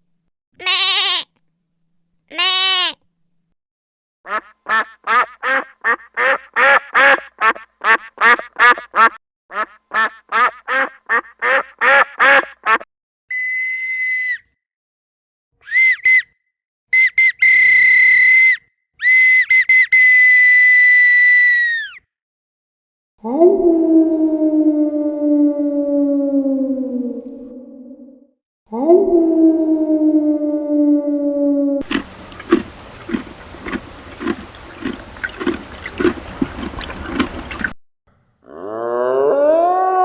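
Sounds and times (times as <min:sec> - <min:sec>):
harsh quack-like calls: 0:00.6 - 0:01.2, 0:02.3 - 0:03.0, 0:04.3 - 0:12.8
whistle blasts: 0:13.3 - 0:14.5, 0:15.6 - 0:16.4, 0:17.0 - 0:22.0.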